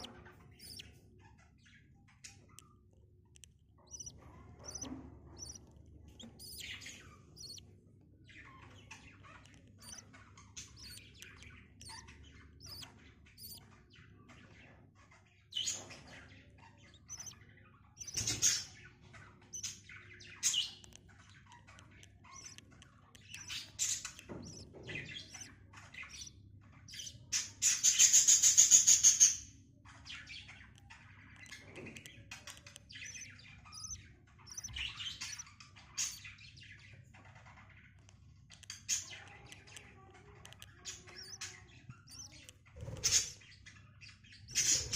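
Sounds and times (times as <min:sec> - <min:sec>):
budgies chirping: 0:00.0 - 0:44.9
harsh rapid bird call: 0:04.7 - 0:05.6, 0:33.1 - 0:35.4.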